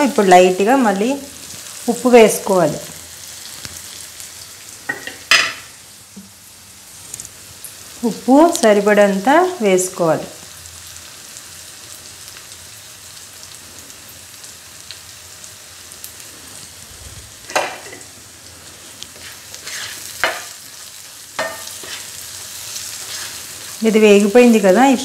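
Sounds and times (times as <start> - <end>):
masala sizzling in a frying pan: 0.0 - 25.0
spatula knocking and scraping pan: 19.2 - 20.6, 21.4 - 22.1.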